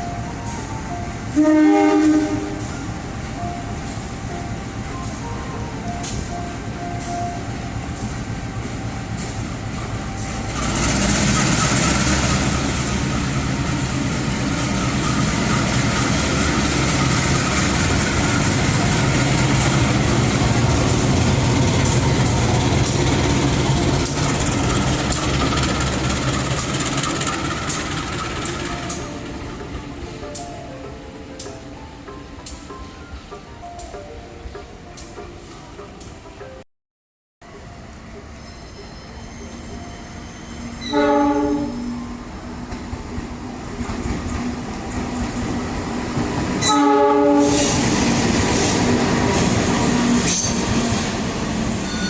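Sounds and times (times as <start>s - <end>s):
train passing: 0.0s - 36.6s, 37.4s - 52.0s
wheels clicking over track: 15.5s - 29.0s.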